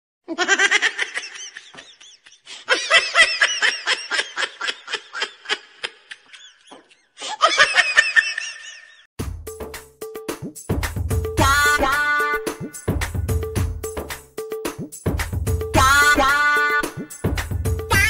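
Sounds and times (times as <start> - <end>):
high-pitched laughter: 0.3 - 9.1.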